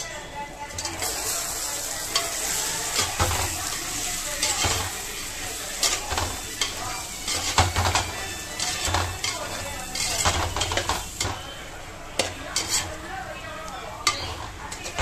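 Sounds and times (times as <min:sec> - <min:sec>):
chicken sizzling in oil: 0:00.0 - 0:15.0
metal ladle scraping pot: 0:05.8 - 0:11.5, 0:12.2 - 0:13.0.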